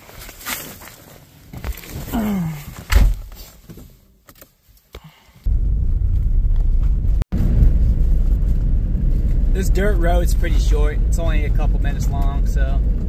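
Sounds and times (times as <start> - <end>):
car engine low rumble: 5.5 - 13.0.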